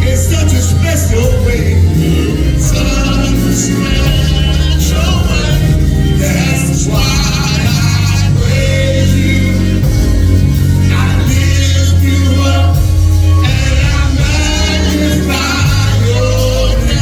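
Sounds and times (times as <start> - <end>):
gospel singing voices: 0.0 - 17.0
held bass notes: 0.0 - 17.0.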